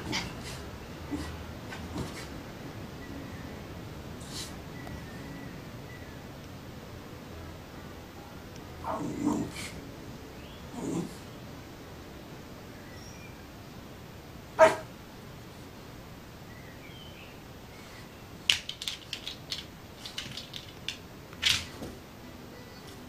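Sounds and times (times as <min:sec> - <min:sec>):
young dog barking: 0:08.8 - 0:09.7, 0:14.6 - 0:14.9.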